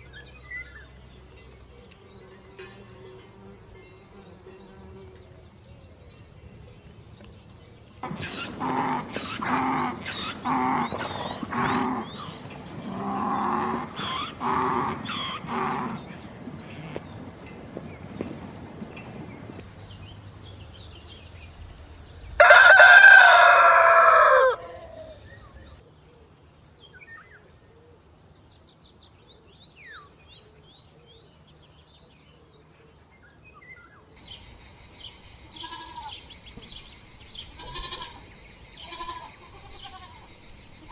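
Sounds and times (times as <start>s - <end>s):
rooster crowing: 8.0s - 16.0s, 22.4s - 25.3s
chickens calling: 8.0s - 19.7s, 22.4s - 25.6s.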